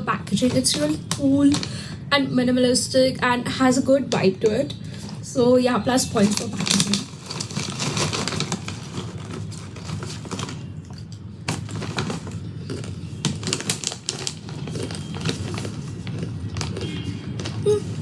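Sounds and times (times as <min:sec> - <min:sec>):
crunchy chips being chewed: 0:06.3 - 0:18.0.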